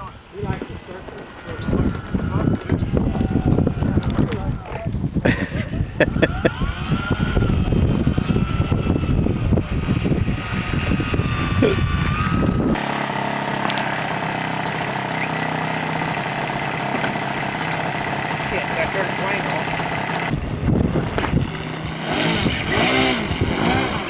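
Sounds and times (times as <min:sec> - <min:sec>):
wind on microphone: 0:00.0 - 0:12.8, 0:18.3 - 0:24.0
model airplane engine running: 0:00.0 - 0:24.0.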